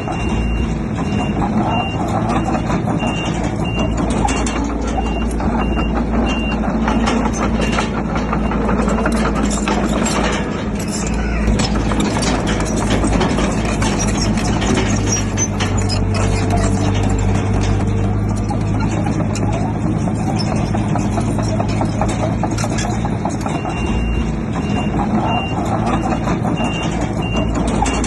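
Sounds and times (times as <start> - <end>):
reversing alarm beeping: 0.0 - 10.0, 23.4 - 28.0
bulldozer diesel engine: 0.0 - 28.0
metallic clatter: 0.0 - 28.0.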